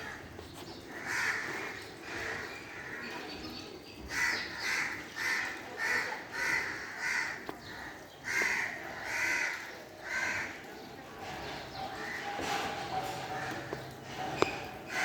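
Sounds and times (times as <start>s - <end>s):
crows cawing: 0.9s - 3.1s, 4.1s - 10.6s.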